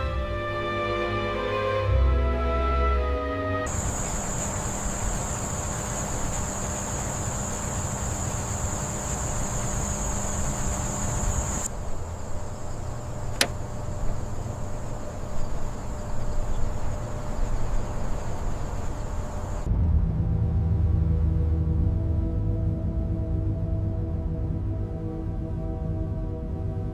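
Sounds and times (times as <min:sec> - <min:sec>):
car engine rumbling: 0:03.7 - 0:19.7
high-pitched insect-like trill: 0:03.7 - 0:19.7
sharp click: 0:13.3 - 0:13.7.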